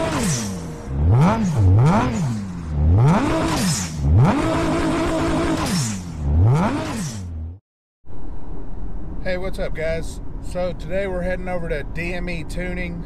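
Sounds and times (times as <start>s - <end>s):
car engine revving: 0.0s - 7.6s.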